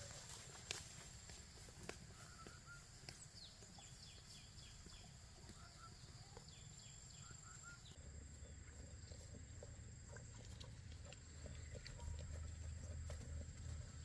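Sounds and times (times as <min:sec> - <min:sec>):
low bird chirps: 0:02.1 - 0:09.4.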